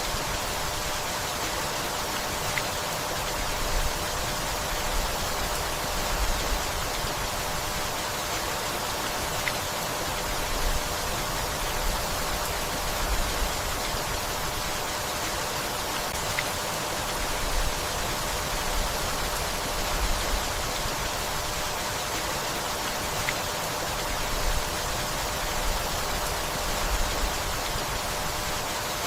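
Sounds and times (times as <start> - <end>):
gentle rain falling: 0.0 - 29.0.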